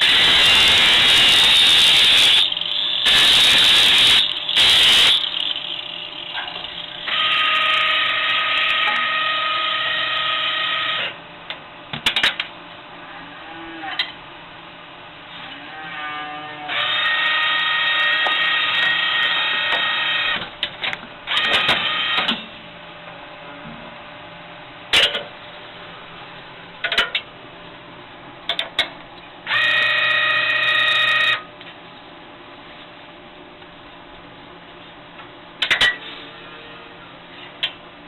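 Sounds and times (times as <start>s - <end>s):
machine whining: 0.0s - 11.2s.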